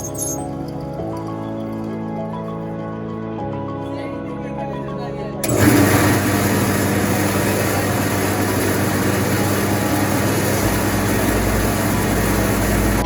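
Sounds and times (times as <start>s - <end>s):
electric motor running rice mill: 5.4s - 13.0s.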